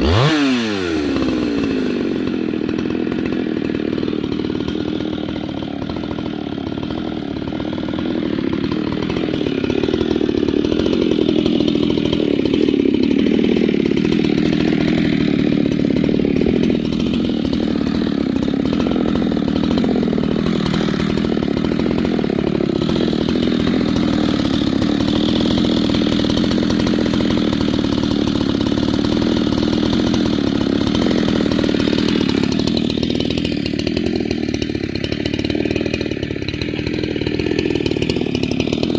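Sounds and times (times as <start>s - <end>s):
chainsaw running hard: 0.0s - 38.9s.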